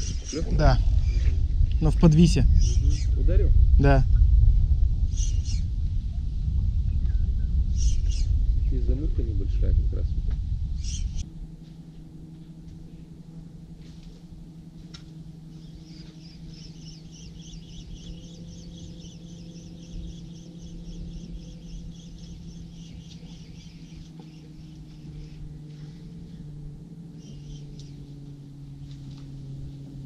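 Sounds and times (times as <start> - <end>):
steady low hum: 0.0 - 30.0
bird chirping rapidly: 1.8 - 3.2, 5.1 - 5.7, 7.7 - 8.4, 10.8 - 11.2, 15.5 - 25.4, 27.2 - 28.1.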